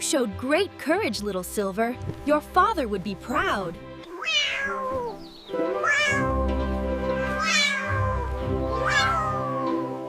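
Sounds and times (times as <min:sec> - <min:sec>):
background music: 0:00.0 - 0:10.0
cat meowing: 0:03.4 - 0:10.0.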